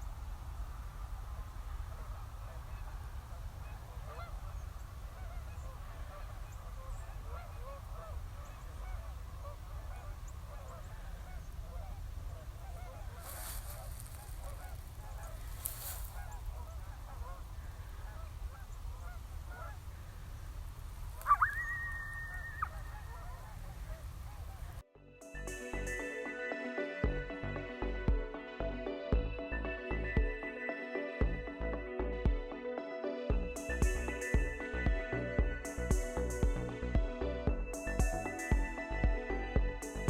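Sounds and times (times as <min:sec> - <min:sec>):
geese honking: 0:01.3 - 0:20.5, 0:21.2 - 0:24.8.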